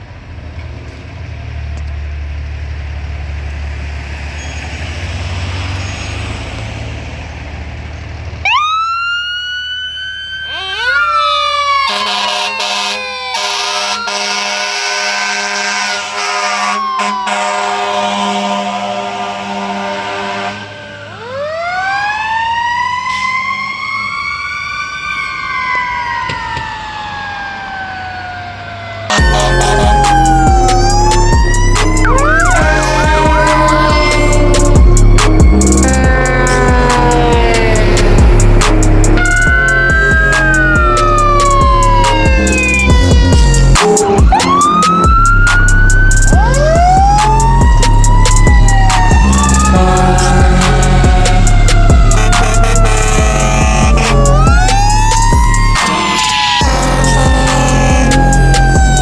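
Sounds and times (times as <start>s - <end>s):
fire truck engine rumbling: 0.0s - 59.0s.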